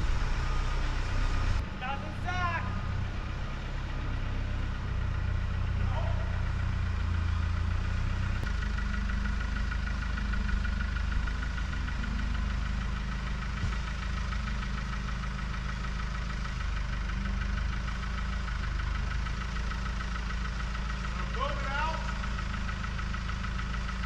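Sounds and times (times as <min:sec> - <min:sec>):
tractor engine idling: 0:00.0 - 0:24.0.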